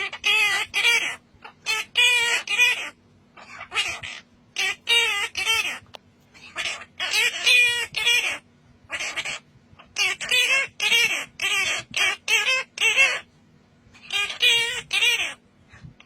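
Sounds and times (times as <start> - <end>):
parrot calling: 0.0 - 13.3, 14.0 - 16.0.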